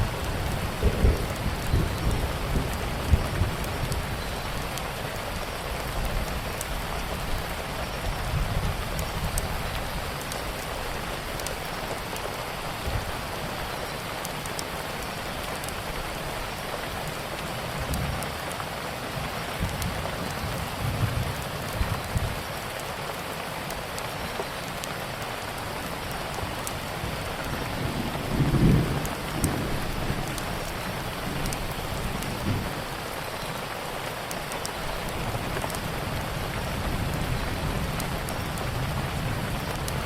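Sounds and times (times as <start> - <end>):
steady rain falling: 0.0 - 40.0
wood fire crackling: 8.6 - 40.0.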